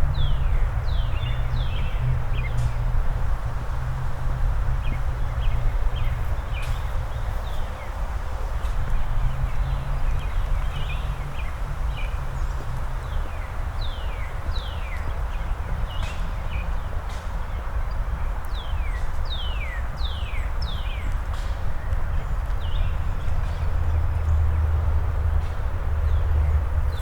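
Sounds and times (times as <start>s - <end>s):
low outdoor rumble: 0.0s - 16.2s.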